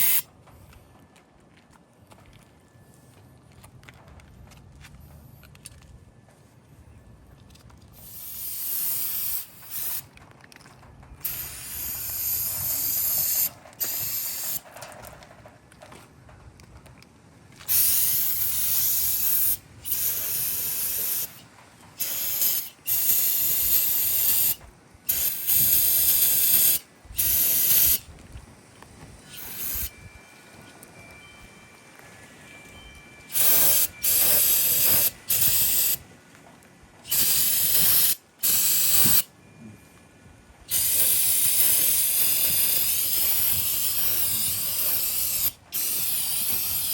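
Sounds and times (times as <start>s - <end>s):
aerosol spray hissing: 0.0s - 0.2s, 8.0s - 10.0s, 11.2s - 14.6s, 17.7s - 21.4s, 22.0s - 28.0s, 29.3s - 29.9s, 33.3s - 36.0s, 37.1s - 39.3s, 40.7s - 46.9s.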